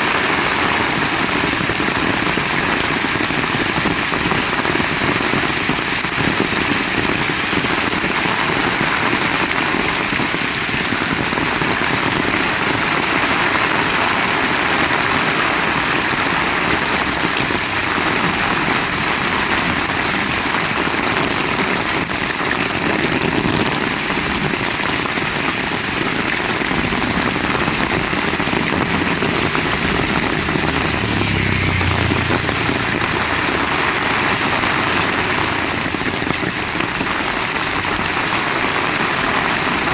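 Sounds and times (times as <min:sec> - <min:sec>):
heavy rain falling: 0:00.0 - 0:39.9
low rumble: 0:26.8 - 0:36.3.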